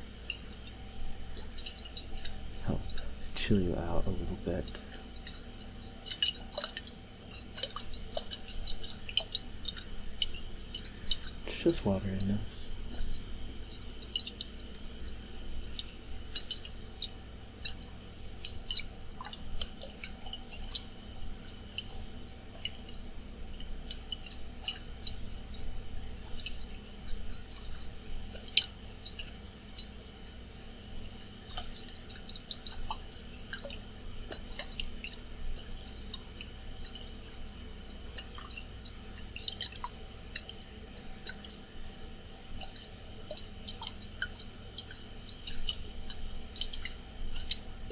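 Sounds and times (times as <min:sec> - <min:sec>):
air conditioner hum: 0:00.0 - 0:47.9
water sloshing in glass bottle: 0:01.1 - 0:11.4.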